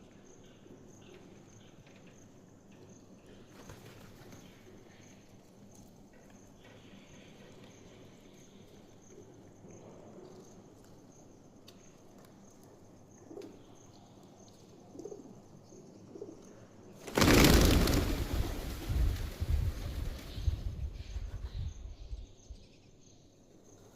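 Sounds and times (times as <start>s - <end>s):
faint pigeons cooing: 12.7s - 17.0s.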